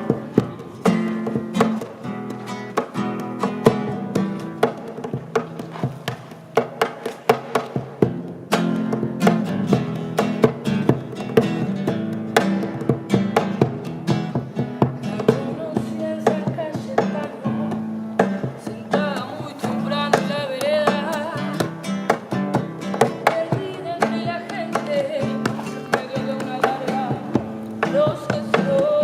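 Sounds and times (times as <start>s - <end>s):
strummed acoustic guitar: 0.0s - 29.0s.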